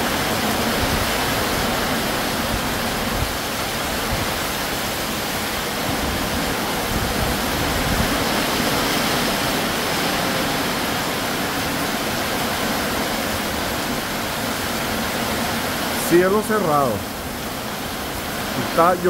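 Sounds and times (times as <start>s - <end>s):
heavy rain on metal roof: 0.0s - 19.0s
wind blowing: 0.0s - 19.0s.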